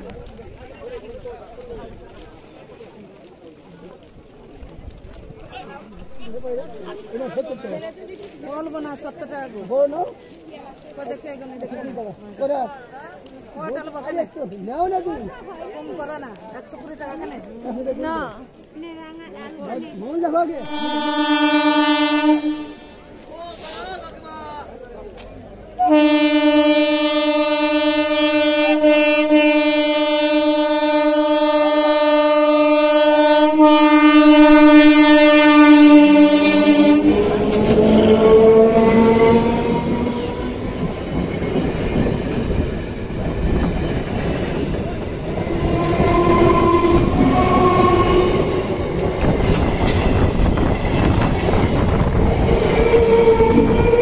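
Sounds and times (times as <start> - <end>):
train wheels rumbling on rails: 0.0 - 12.3, 13.0 - 54.0
train horn blast: 20.6 - 23.2, 25.8 - 40.6, 45.5 - 50.2, 52.6 - 54.0.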